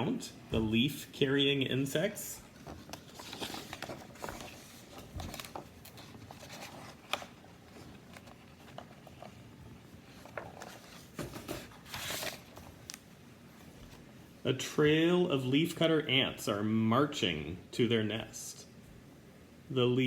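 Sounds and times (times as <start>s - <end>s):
rustling: 2.4s - 13.0s.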